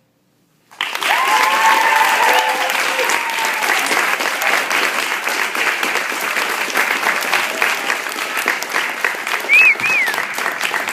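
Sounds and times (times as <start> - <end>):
audience applauding: 0.7 - 10.9
short whistles: 9.5 - 10.3.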